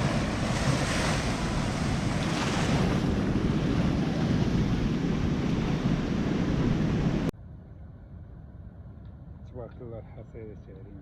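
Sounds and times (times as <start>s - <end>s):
sea surf breaking: 0.0s - 7.3s
wind buffeting microphone: 0.0s - 7.3s.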